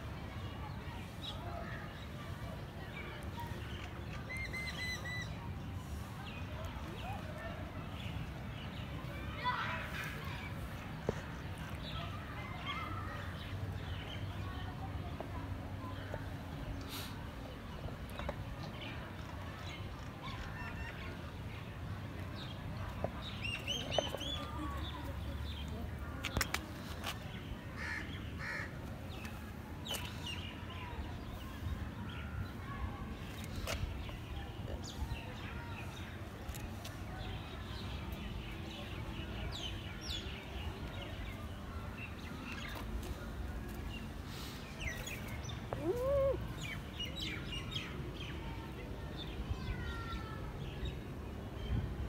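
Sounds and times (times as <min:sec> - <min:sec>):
small birds chirping: 0:00.5 - 0:07.2.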